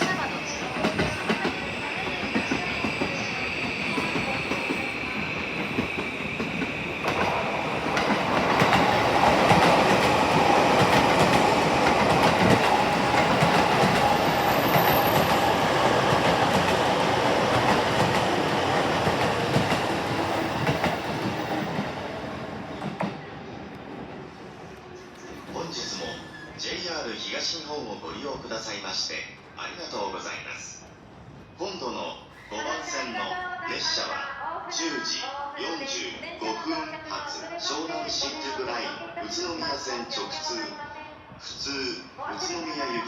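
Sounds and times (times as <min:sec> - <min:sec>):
train wheels clattering over rails: 0:00.0 - 0:23.2.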